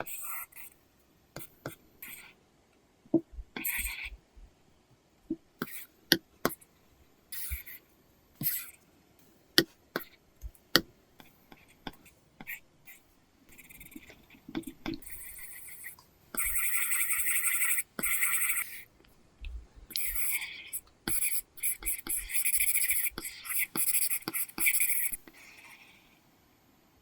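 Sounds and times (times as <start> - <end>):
stylus scratching on screen: 0.0 - 0.8, 3.6 - 4.2, 7.4 - 8.8, 9.6 - 19.0, 19.9 - 26.0
stylus tapping on screen: 9.6 - 12.6.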